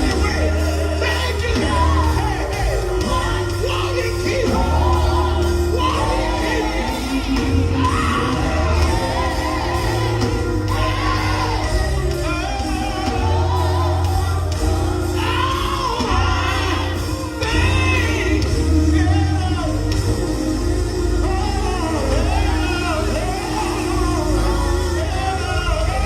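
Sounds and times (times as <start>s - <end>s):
bass line: 0.0s - 26.0s
gospel group singing: 0.0s - 26.0s
held chords: 0.0s - 26.0s.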